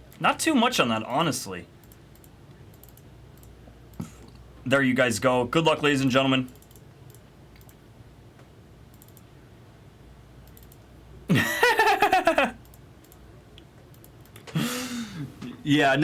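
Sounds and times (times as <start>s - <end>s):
keyboard and mouse clicking: 1.8s - 4.1s, 6.5s - 7.8s, 8.9s - 9.3s, 10.4s - 10.8s, 12.6s - 14.6s.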